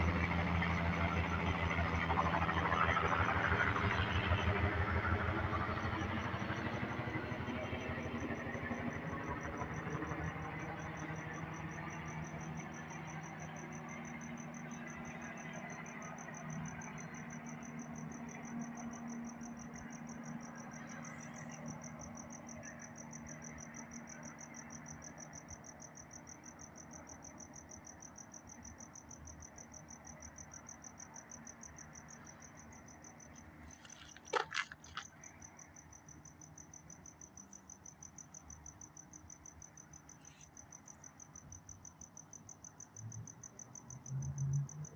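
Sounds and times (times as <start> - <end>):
helicopter engine and rotor drone: 0.0 - 34.9
cricket trill: 0.1 - 44.9.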